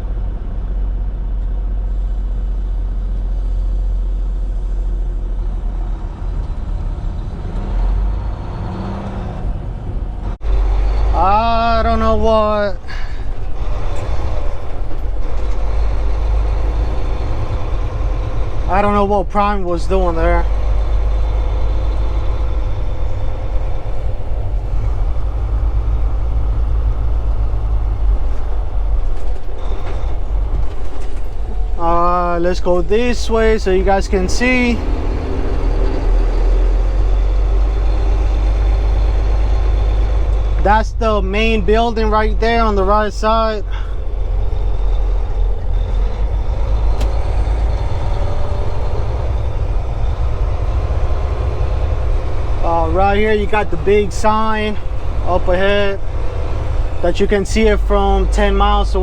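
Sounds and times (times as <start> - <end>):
diesel truck engine rumbling: 0.0 - 59.0.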